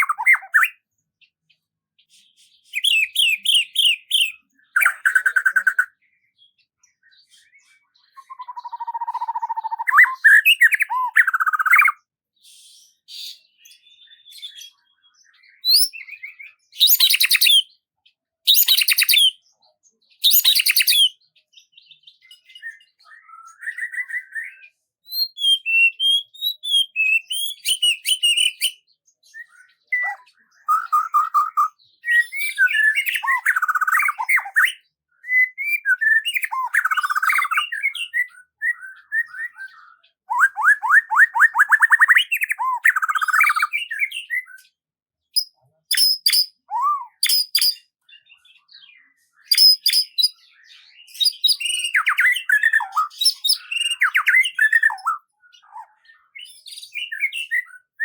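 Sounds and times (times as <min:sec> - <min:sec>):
birds chirping and trilling: 0:00.0 - 0:58.0
loud noisy bird calls: 0:07.4 - 0:12.0, 0:15.6 - 0:17.7, 0:29.4 - 0:44.4, 0:48.9 - 0:57.9.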